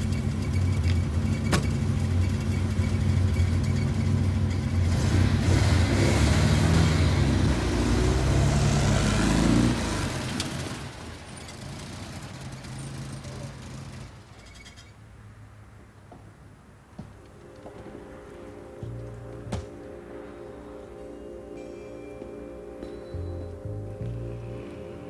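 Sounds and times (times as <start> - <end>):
car engine accelerating: 0.0 - 14.6.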